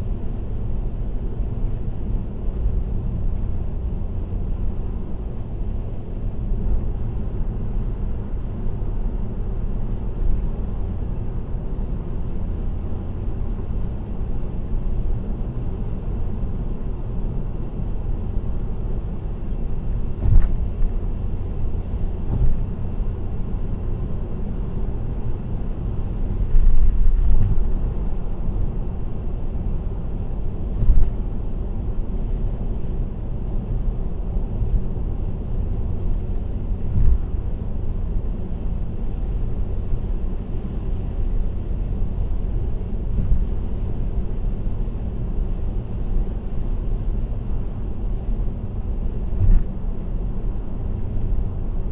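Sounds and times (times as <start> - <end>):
car road noise: 0.0 - 51.9.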